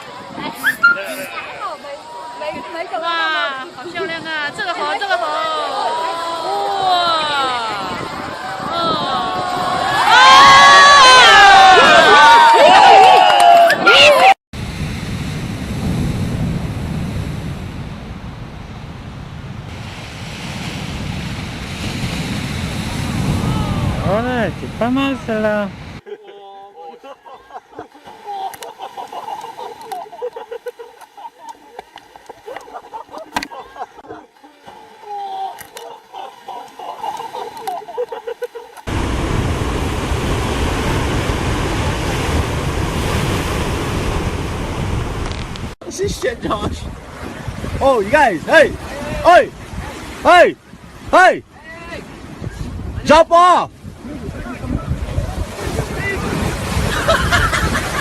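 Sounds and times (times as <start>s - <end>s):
ocean surf rushing: 0.0s - 13.2s, 13.8s - 26.0s, 34.6s - 58.0s
wind buffeting microphone: 6.0s - 12.1s, 14.6s - 26.0s, 38.9s - 58.0s.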